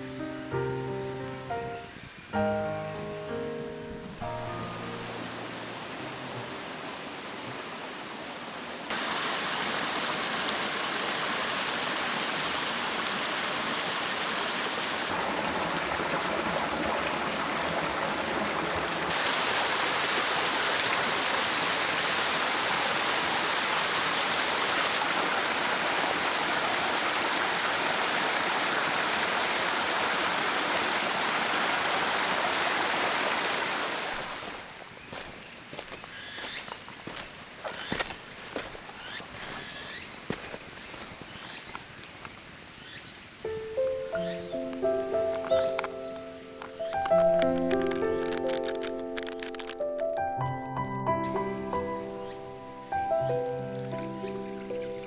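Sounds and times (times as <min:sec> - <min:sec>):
mountain stream flowing: 0:04.2 - 0:41.2, 0:51.3 - 0:55.0.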